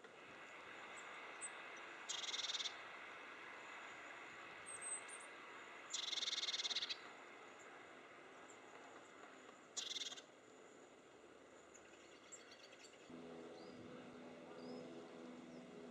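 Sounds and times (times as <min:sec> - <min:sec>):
cricket buzzing trills: 0:02.1 - 0:02.8.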